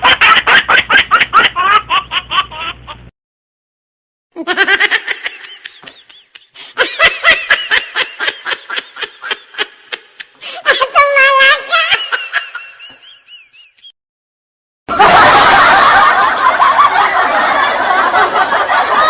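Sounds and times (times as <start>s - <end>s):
rhythmic bursts of laughter: 4.4s - 10.7s, 14.9s - 19.0s.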